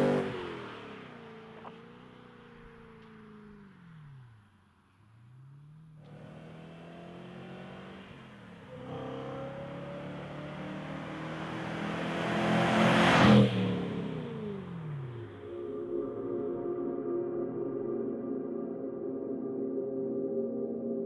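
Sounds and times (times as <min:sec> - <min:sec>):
car accelerating past: 0:00.0 - 0:15.5.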